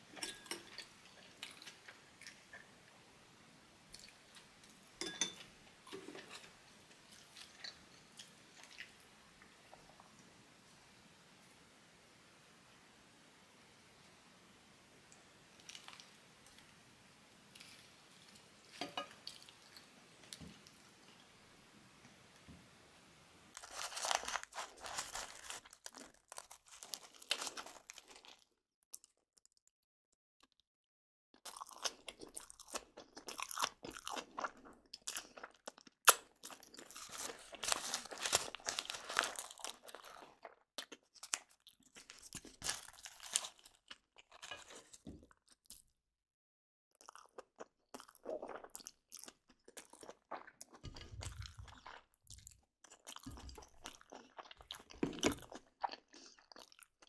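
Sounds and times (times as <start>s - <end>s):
crackly crunching: 23.5s - 29.7s, 31.4s - 45.8s.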